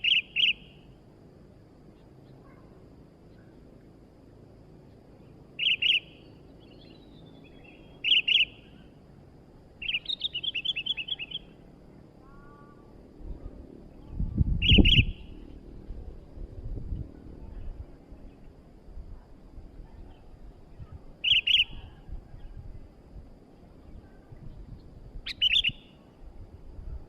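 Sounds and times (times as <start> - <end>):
bulbul chirping: 5.6 - 7.1, 7.7 - 8.7, 14.6 - 15.4, 21.2 - 21.8, 25.2 - 25.9.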